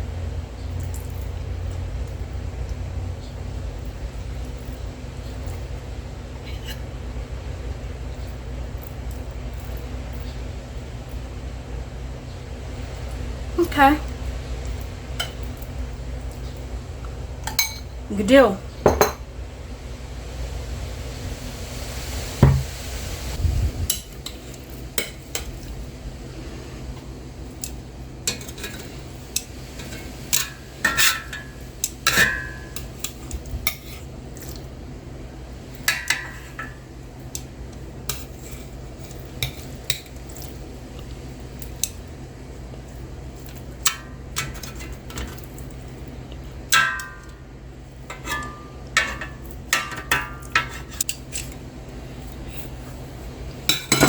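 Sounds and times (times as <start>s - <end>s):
steady low hum: 0.0s - 54.0s
cutlery and dishes clinking: 53.7s - 54.0s.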